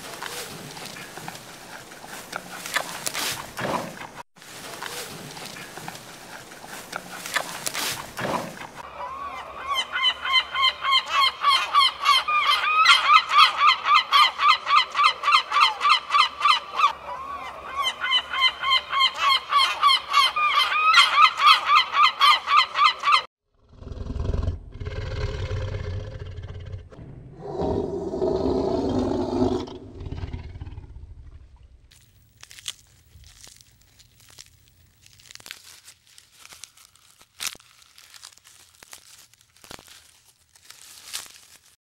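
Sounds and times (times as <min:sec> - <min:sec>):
low rumbling: 0:24.6 - 0:31.9.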